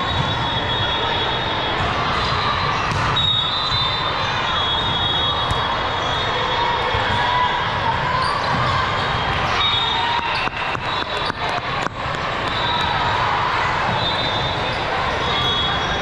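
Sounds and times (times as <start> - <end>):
sneaker squeaks: 0.0 - 1.1, 1.7 - 7.3, 8.1 - 13.2, 13.8 - 16.0.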